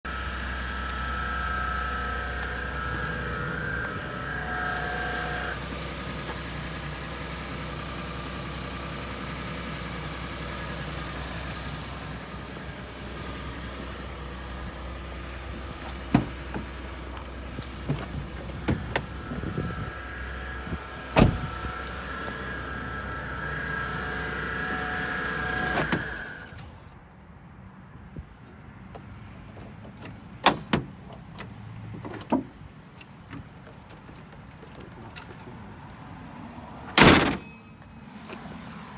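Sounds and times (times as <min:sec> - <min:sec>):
truck engine idling with whine: 0:00.0 - 0:27.0.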